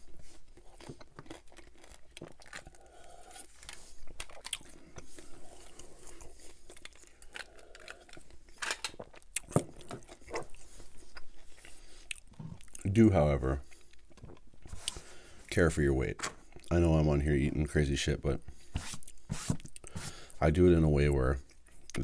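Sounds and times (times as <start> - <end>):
man chewing and swallowing: 0.0 - 13.0, 13.6 - 15.4, 18.4 - 20.4.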